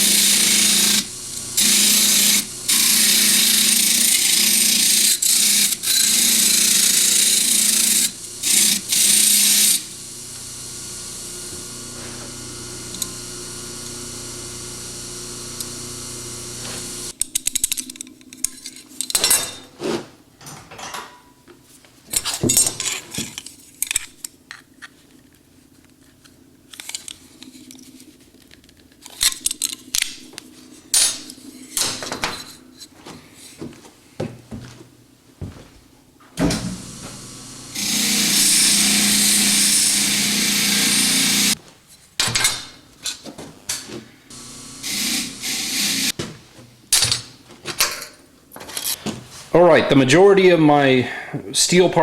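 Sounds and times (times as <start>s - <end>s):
power tool motor humming: 0.0s - 17.2s, 36.4s - 41.6s, 44.3s - 46.2s.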